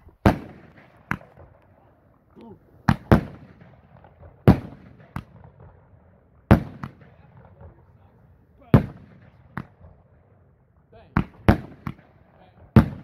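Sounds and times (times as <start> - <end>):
fireworks bangs with echo: 0.2 - 1.8, 2.8 - 7.9, 8.6 - 10.2, 11.0 - 13.0.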